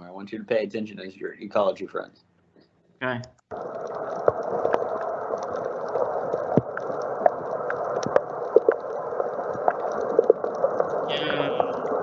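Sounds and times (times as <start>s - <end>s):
small clicks and pops: 2.6s - 11.1s
muffled underwater rushing: 3.5s - 12.0s.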